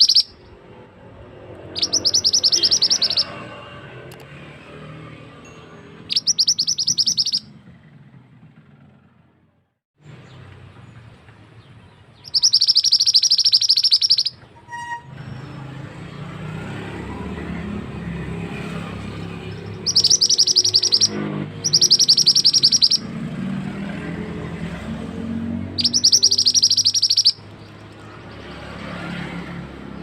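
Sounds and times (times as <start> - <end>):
bird trilling: 0.0 - 0.6, 1.5 - 3.6, 5.9 - 7.7, 12.2 - 15.7, 18.3 - 28.7.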